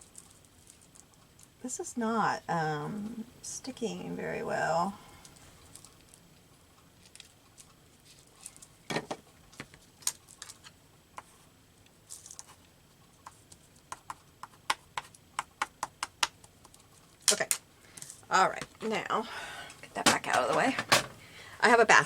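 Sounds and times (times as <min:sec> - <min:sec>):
paper and craft tools tapping: 0:20.0 - 0:21.1.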